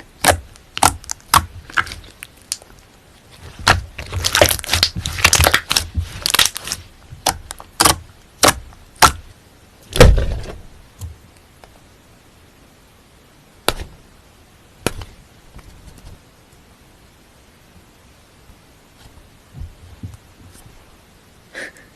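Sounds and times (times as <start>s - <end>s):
slime crackling and popping: 0.1s - 9.3s
heavy thud: 9.9s - 10.6s.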